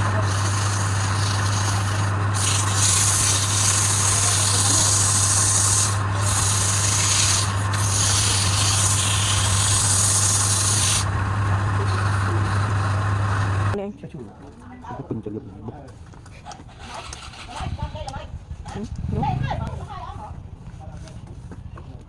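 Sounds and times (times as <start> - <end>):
abrasive rubbing spinning wood: 0.0 - 13.8
wood lathe humming: 0.0 - 13.8.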